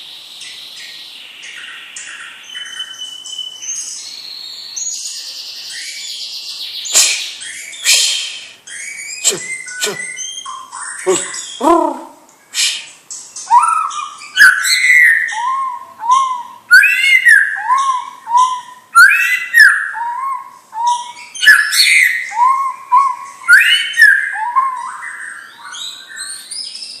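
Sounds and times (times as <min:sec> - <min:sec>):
bird singing whistled notes: 0:00.0 - 0:11.9, 0:12.5 - 0:27.0.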